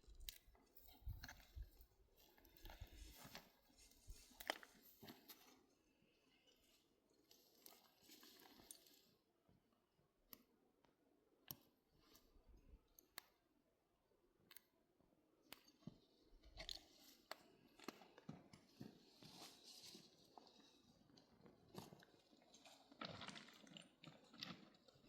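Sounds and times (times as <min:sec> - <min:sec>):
faint clicks and crunching crackles: 0:00.0 - 0:25.0.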